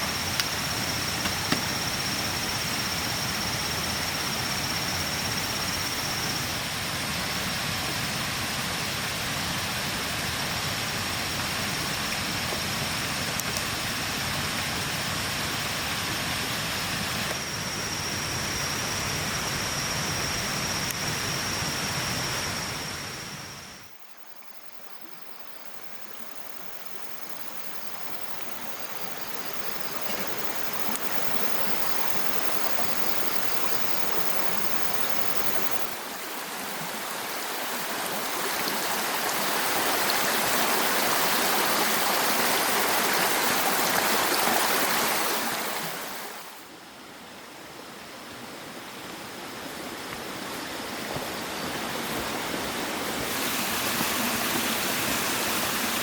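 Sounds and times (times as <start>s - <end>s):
rushing water: 26.7s - 46.8s, 47.4s - 56.0s.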